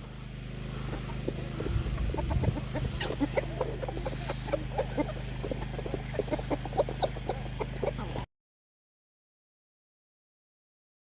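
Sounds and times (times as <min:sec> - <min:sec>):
chickens clucking: 0:00.0 - 0:08.3
steady low hum: 0:00.0 - 0:08.3.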